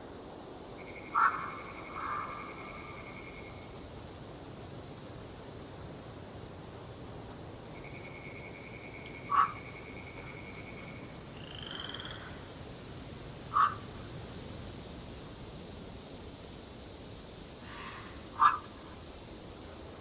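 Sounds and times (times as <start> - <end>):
steady background hiss: 0.0 - 20.0
loud croaking calls: 0.9 - 3.3, 8.0 - 12.5, 13.5 - 13.9, 17.7 - 18.8.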